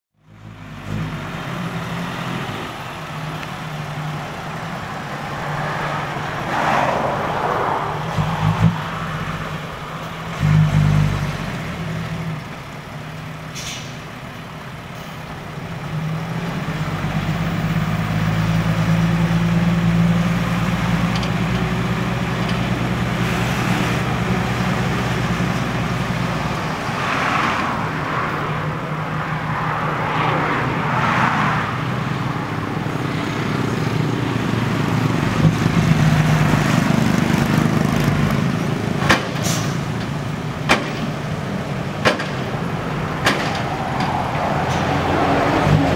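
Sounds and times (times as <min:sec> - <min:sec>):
truck engine under load: 0:00.2 - 0:45.9
rushing noises: 0:23.1 - 0:45.9.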